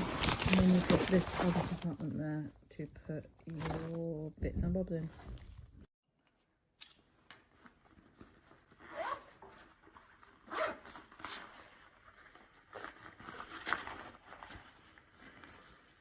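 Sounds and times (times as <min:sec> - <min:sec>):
zip being pulled: 0:08.8 - 0:09.6, 0:10.4 - 0:11.6.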